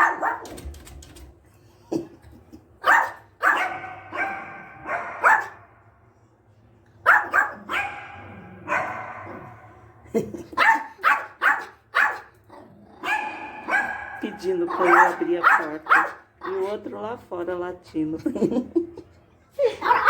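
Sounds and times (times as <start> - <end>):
dog barking: 0.0 - 0.5, 2.8 - 5.7, 7.0 - 9.9, 10.6 - 12.3, 13.0 - 16.7.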